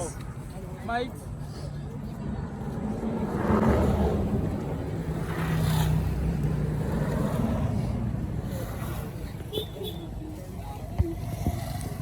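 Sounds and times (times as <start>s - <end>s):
vehicle engine humming: 5.9s - 12.0s.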